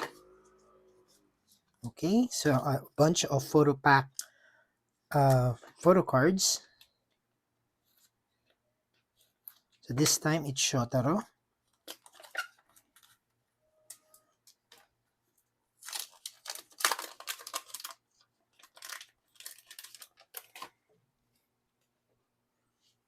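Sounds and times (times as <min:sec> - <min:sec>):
packaging tearing and crinkling: 0:15.8 - 0:20.8.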